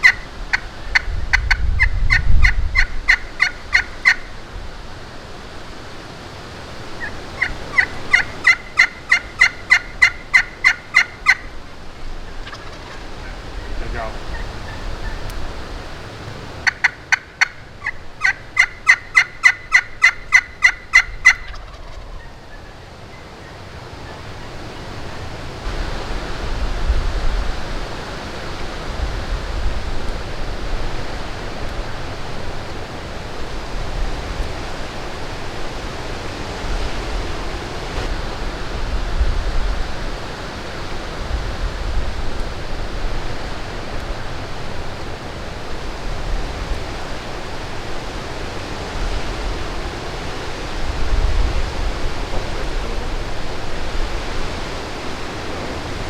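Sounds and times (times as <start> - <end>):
turkey call notes: 0.0 - 4.5, 6.0 - 25.7
wind buffeting microphone: 0.0 - 56.0.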